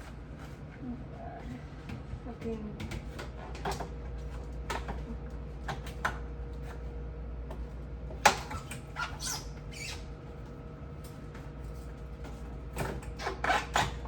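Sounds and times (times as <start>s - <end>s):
short squeaks and scrapes: 8.4s - 10.1s, 13.1s - 14.0s.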